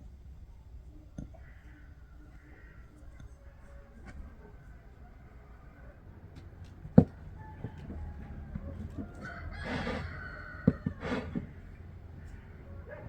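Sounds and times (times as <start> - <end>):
rooster crowing: 7.0 - 11.5.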